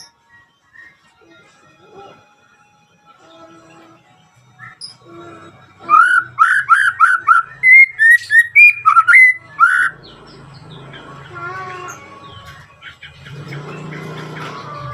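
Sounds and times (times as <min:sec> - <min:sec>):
bird singing whistled notes: 0:04.6 - 0:05.0, 0:05.8 - 0:10.3.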